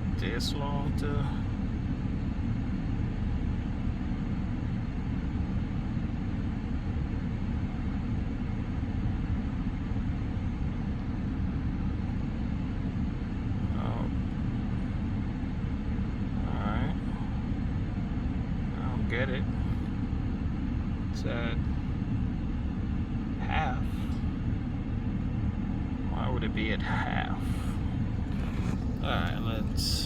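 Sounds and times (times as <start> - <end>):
car engine idling: 23.5 - 30.0.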